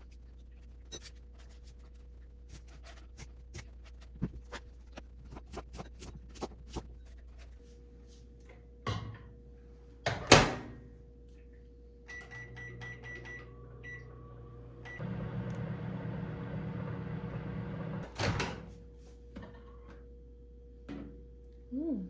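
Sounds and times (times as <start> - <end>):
microwave door banging shut: 10.1 - 10.8
microwave humming: 12.0 - 21.4
keypad beeps: 12.1 - 14.0.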